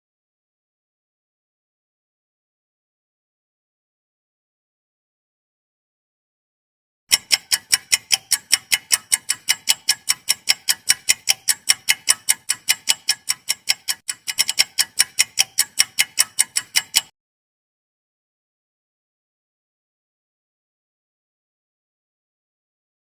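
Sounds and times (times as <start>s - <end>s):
clock ticking countdown timer: 7.1s - 17.1s.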